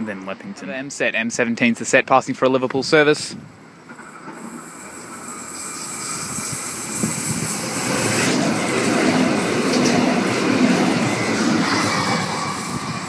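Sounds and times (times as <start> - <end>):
electric train running: 3.6 - 13.0.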